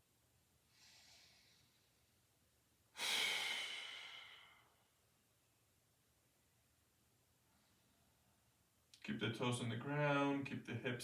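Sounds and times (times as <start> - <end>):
person inhaling: 0.7 - 1.9, 3.0 - 4.8
person exhaling loudly: 3.0 - 4.7.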